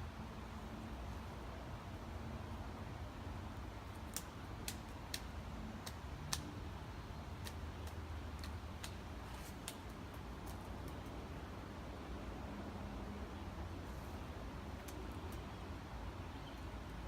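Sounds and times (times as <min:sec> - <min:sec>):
woodpecker pecking wood: 0:07.4 - 0:11.1.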